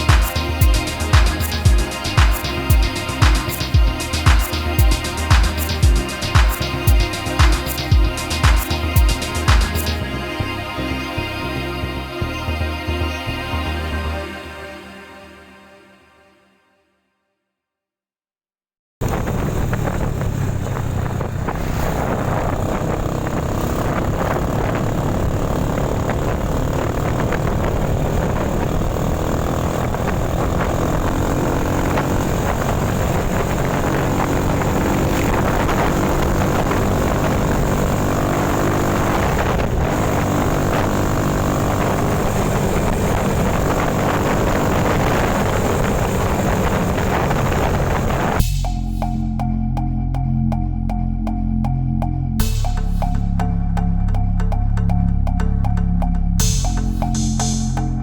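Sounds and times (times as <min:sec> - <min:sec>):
heavy wind rush: 0:00.0 - 0:10.7, 0:19.0 - 0:49.4
vehicle engine running: 0:00.0 - 0:11.0, 0:19.0 - 0:58.0.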